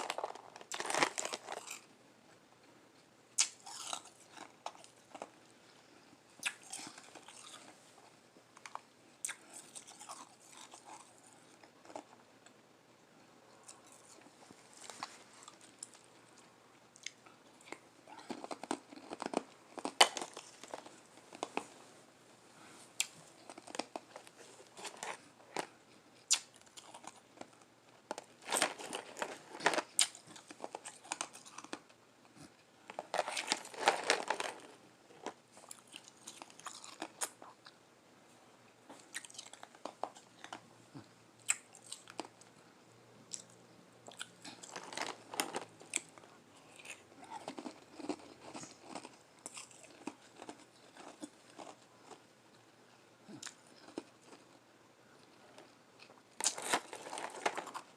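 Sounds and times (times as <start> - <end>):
chewing crunchy ice: 0.0 - 1.9, 3.4 - 5.3, 6.4 - 7.8, 8.6 - 12.2, 17.0 - 21.7, 23.0 - 31.8, 32.4 - 37.6, 39.0 - 40.6, 43.3 - 52.2, 53.3 - 54.6, 55.2 - 57.9.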